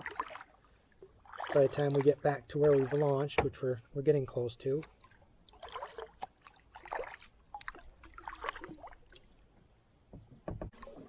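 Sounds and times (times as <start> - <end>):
kayak paddle splashing water: 0.0 - 4.0, 4.8 - 9.6, 10.3 - 11.0
paddle clicks: 4.8 - 9.4.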